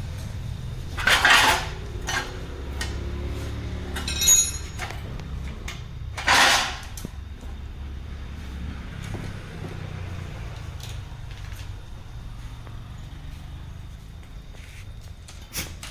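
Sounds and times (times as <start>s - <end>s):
metal tools clattering: 0.0s - 7.6s
steady low hum: 0.0s - 15.4s.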